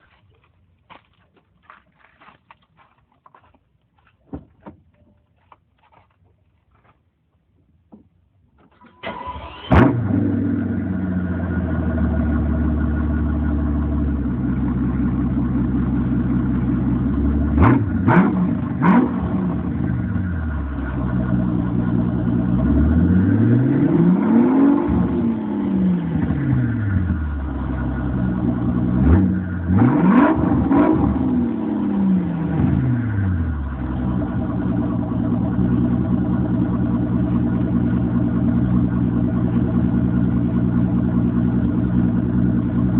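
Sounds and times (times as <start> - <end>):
car engine idling and revving: 9.0 - 42.9.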